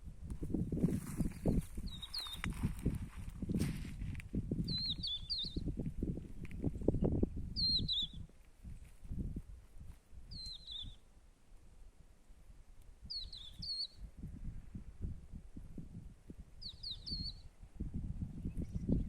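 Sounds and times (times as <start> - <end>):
bird chirping: 1.2 - 2.5, 4.6 - 5.8, 6.8 - 8.3, 10.3 - 11.0, 13.0 - 14.1, 16.6 - 17.6, 18.3 - 19.0.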